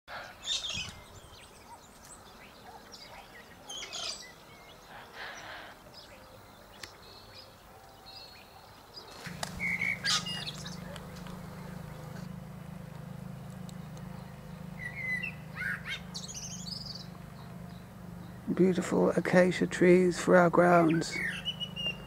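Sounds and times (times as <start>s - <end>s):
birds chirping and calling: 0.1s - 22.0s
thin whistled bird notes: 6.0s - 12.2s, 13.5s - 18.5s, 21.0s - 22.0s
steady low hum: 9.2s - 19.9s.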